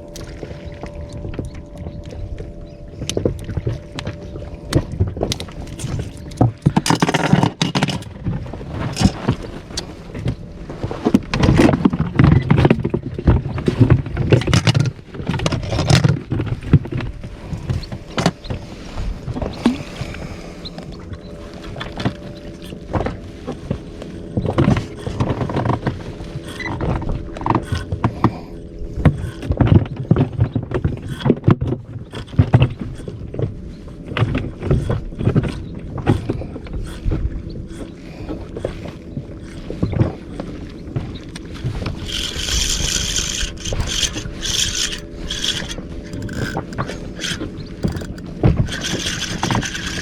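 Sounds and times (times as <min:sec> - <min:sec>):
steady low hum: 0:00.0 - 0:50.0
fishing tackle knocking and scraping: 0:00.1 - 0:10.4, 0:24.4 - 0:50.0.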